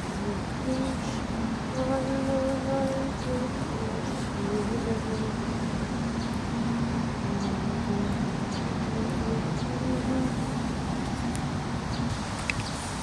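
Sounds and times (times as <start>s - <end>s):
heavy rain and running water: 7.0s - 13.0s.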